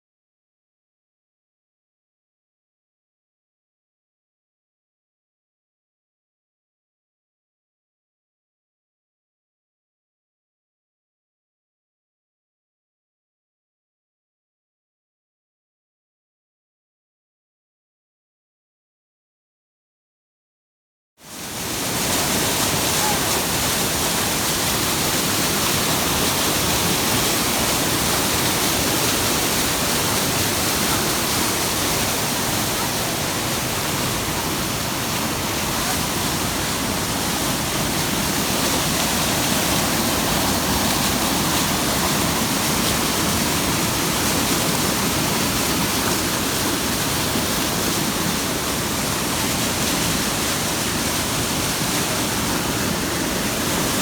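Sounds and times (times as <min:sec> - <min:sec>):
fast-flowing water rushing: 0:21.2 - 0:54.0.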